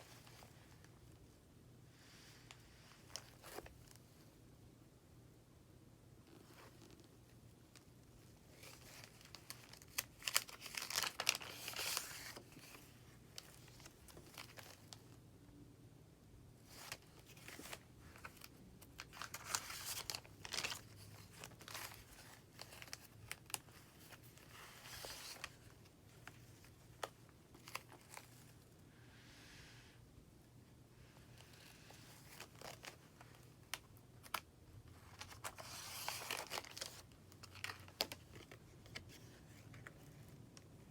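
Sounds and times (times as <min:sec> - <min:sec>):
paper pages rustling and crinkling: 0:06.3 - 0:15.2, 0:16.6 - 0:28.7, 0:31.2 - 0:40.9.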